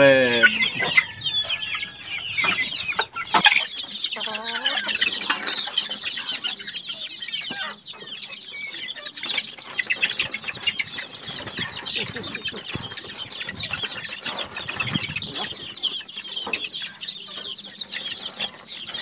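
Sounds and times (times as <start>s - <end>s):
chicks peeping: 0.0s - 19.0s
chick wings flapping: 9.4s - 15.9s.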